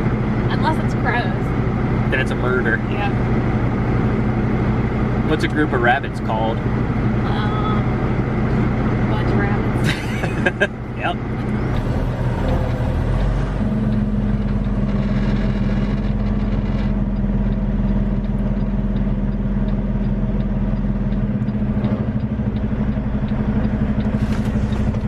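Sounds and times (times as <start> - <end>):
diesel truck engine idling: 0.0 - 25.0.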